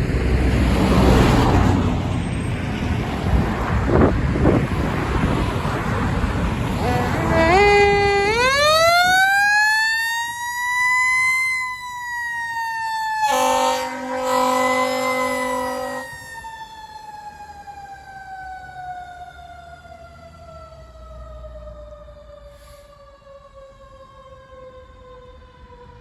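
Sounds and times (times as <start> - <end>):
fire engine siren wailing: 0.0 - 26.0
horn blast: 6.6 - 9.1, 13.2 - 16.3.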